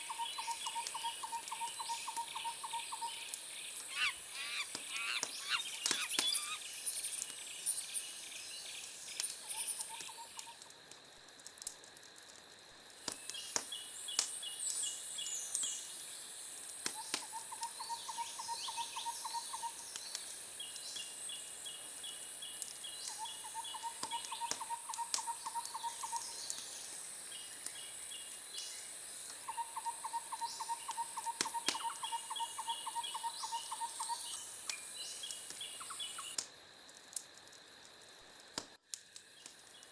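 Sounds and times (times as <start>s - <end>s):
wood fire crackling: 0.3s - 17.8s, 19.7s - 29.5s, 34.4s - 39.9s
birds trilling: 3.8s - 6.6s.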